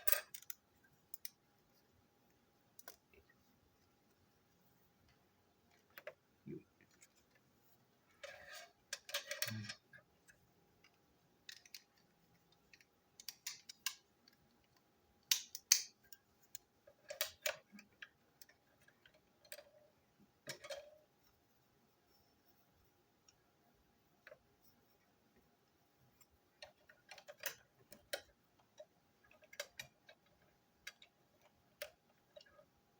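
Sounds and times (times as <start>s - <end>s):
plastic toy parts clicking: 0.0s - 1.4s, 12.8s - 16.2s, 26.6s - 32.4s.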